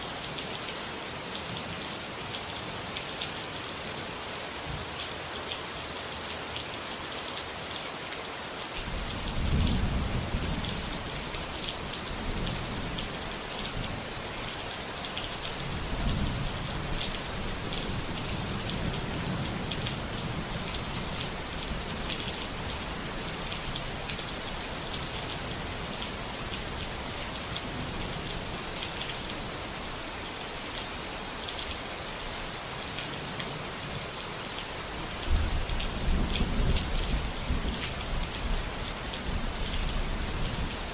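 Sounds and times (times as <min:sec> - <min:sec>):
heavy rain hissing: 0:08.4 - 0:40.9.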